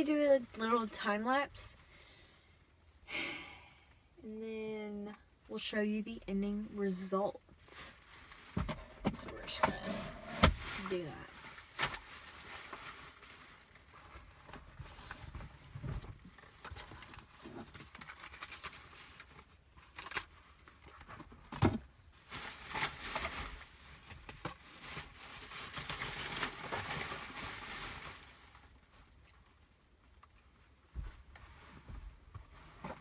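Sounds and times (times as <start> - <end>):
rustling and crinkling: 7.2 - 33.0.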